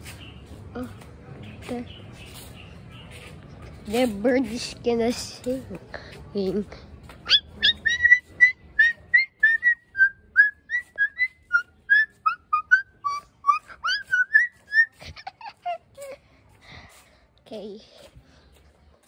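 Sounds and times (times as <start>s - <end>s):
bird singing whistled notes: 7.2s - 15.0s.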